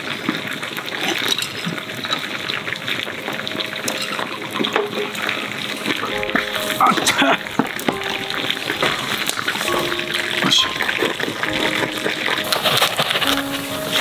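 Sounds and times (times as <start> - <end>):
food sizzling and crackling: 0.0 - 14.0
background music: 3.2 - 14.0.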